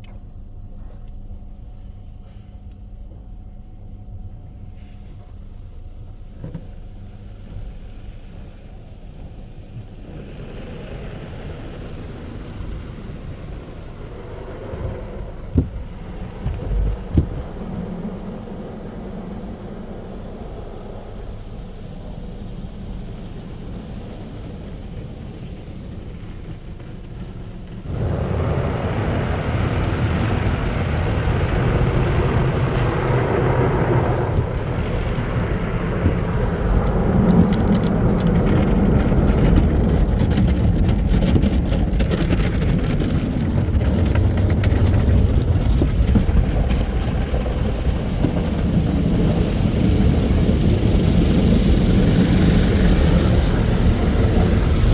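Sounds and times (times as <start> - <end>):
car wash equipment rumbling: 0.0 - 54.9
thumps on car: 14.8 - 18.0
spraying water: 45.5 - 54.9
loud steady air rush: 48.3 - 54.9.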